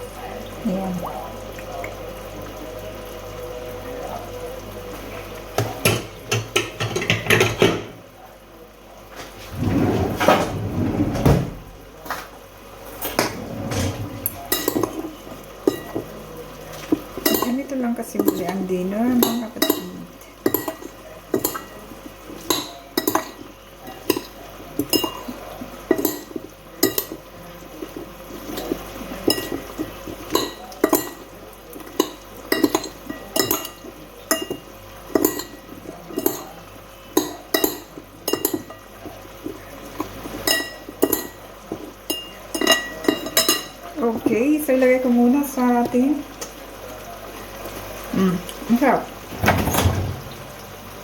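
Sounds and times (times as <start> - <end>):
cutlery clinking against a dish: 5.6 - 8.0, 13.0 - 17.6, 18.2 - 43.8.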